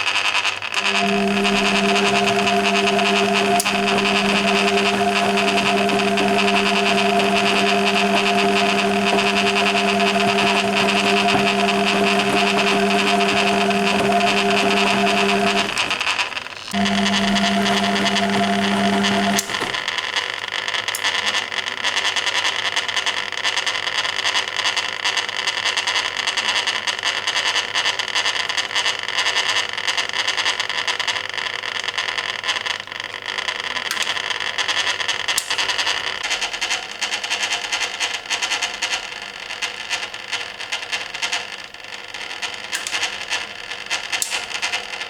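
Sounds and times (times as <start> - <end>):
water sloshing in washing machine: 0.8 - 16.2, 16.8 - 19.8.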